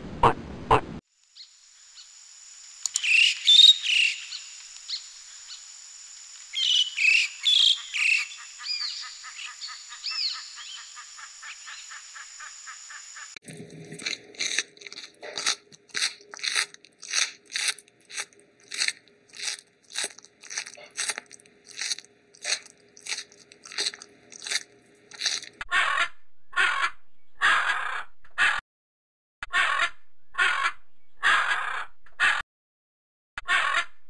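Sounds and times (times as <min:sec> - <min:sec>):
harsh rasping bird calls: 0:02.9 - 0:05.7, 0:06.5 - 0:13.4, 0:14.0 - 0:28.6.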